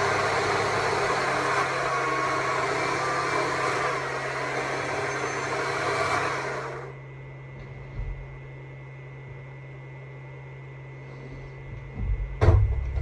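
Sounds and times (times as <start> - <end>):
chainsaw cutting wood: 0.0 - 6.9.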